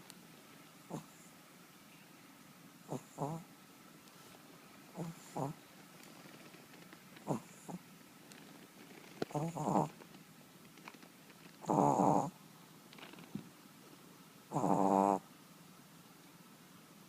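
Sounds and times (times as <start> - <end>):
dog snoring: 0.9 - 1.3, 2.9 - 3.5, 4.9 - 5.6, 7.2 - 7.8, 9.3 - 10.0, 11.6 - 12.4, 14.5 - 15.2.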